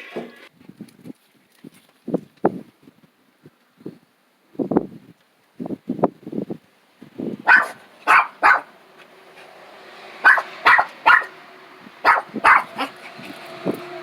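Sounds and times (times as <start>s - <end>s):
small dog barking: 7.4s - 8.8s, 10.2s - 11.4s, 12.0s - 13.0s.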